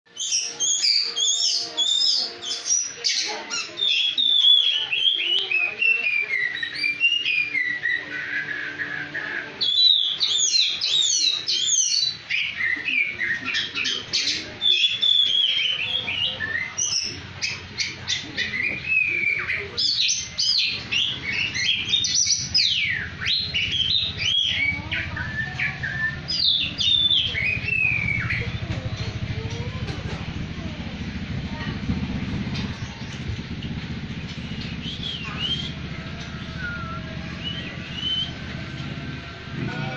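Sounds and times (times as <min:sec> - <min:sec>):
songbird singing: 0:00.1 - 0:39.9.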